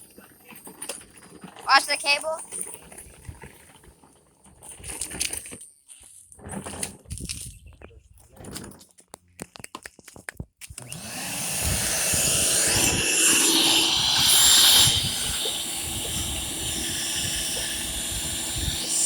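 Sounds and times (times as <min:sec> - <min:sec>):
electric cleaning machine running: 0:10.8 - 0:19.0.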